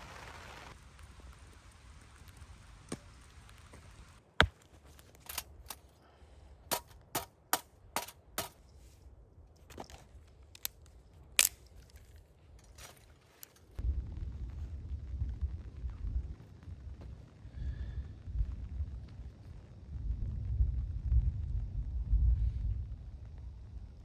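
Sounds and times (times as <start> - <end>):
soft rain hiss: 0.0 - 4.4.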